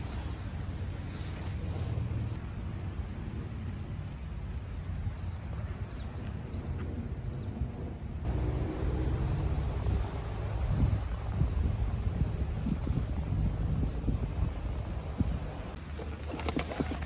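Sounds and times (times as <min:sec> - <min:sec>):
wind buffeting microphone: 0:09.7 - 0:17.0.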